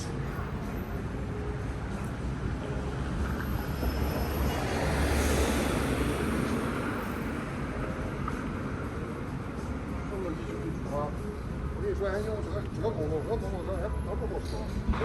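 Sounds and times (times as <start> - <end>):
traffic rumble: 0.0 - 15.0
vehicle passing: 2.8 - 8.2.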